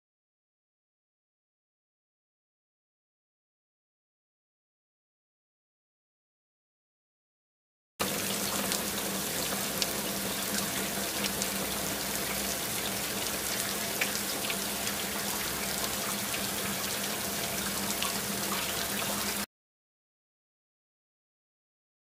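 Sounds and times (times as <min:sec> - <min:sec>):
rain drop ticks: 0:08.5 - 0:12.4.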